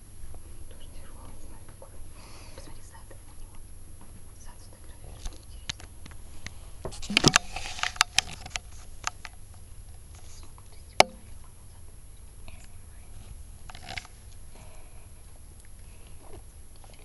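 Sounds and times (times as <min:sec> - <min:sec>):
light taps and clicks: 0:10.2 - 0:11.9.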